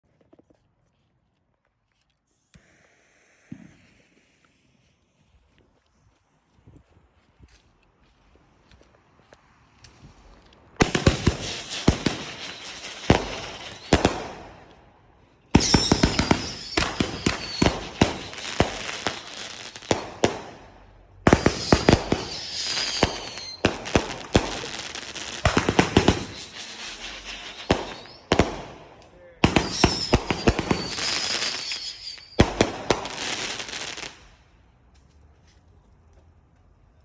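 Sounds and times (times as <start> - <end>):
falling firework whistles: 2.5 - 5.4, 10.8 - 14.6, 15.6 - 20.6, 21.3 - 34.3
firework cake firing rapid shots: 10.8 - 14.5, 15.6 - 19.3, 21.3 - 33.1.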